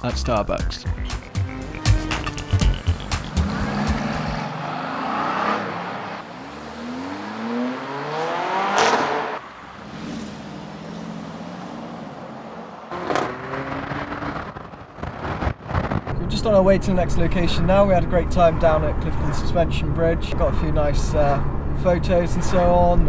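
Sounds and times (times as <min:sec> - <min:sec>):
car engine accelerating past: 0:03.3 - 0:15.4.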